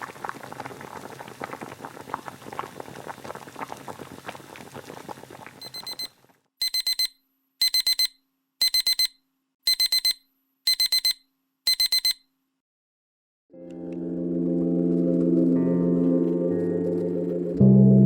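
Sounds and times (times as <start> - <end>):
digital timer alarm beeping: 5.6 - 12.3.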